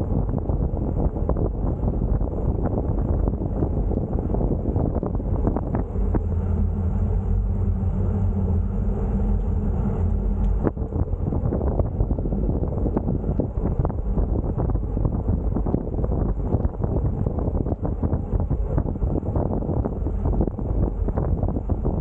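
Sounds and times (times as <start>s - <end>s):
wind buffeting microphone: 0.0s - 22.0s
motor vehicle engine humming: 0.7s - 22.0s.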